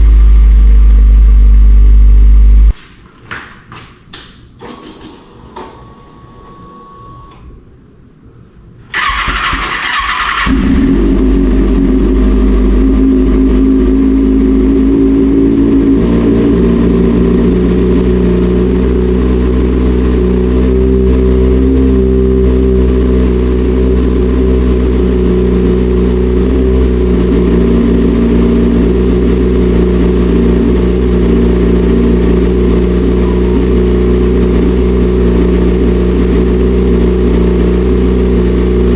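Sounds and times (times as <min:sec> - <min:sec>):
motorcycle electric starter cranking: 0:08.9 - 0:11.1
motorcycle engine idling: 0:09.0 - 0:38.9.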